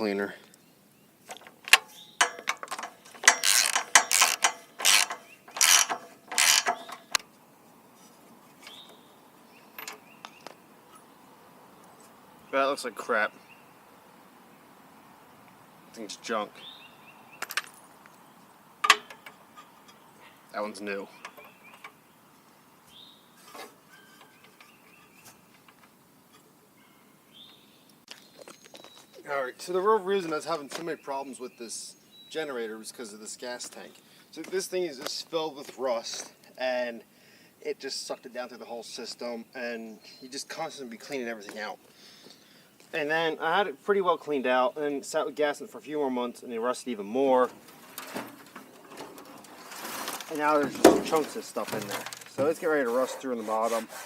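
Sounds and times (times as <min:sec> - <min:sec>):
faint bird chirps: 0:19.2 - 0:29.3.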